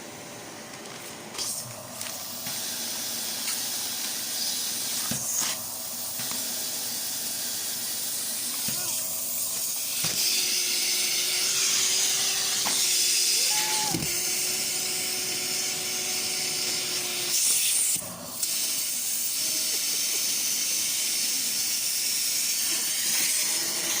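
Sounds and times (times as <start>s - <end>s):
vacuum cleaner running: 0.0s - 24.0s.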